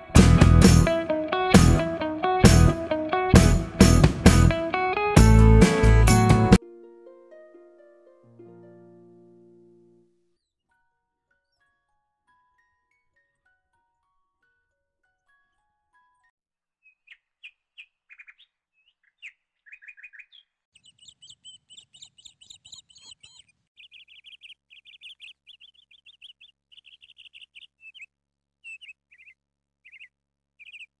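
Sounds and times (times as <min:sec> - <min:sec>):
small birds chirping: 0:16.8 - 0:31.0.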